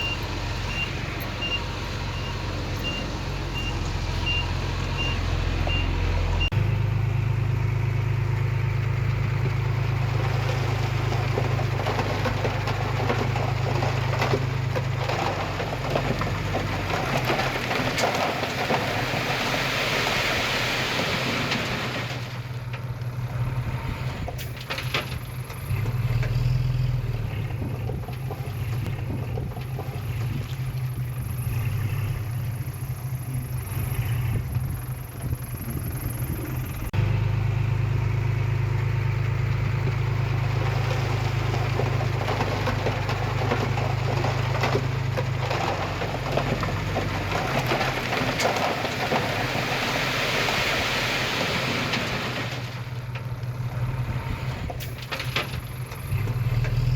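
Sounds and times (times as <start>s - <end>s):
diesel machinery engine drone: 0.0s - 56.9s.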